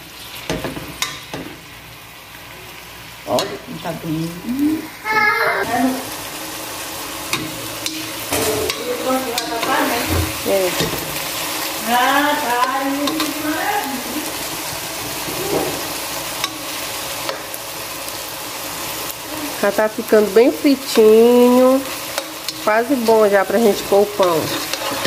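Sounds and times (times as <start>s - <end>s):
onion frying in oil: 0.0s - 25.0s
metal spoon clicking against pan: 13.0s - 13.4s.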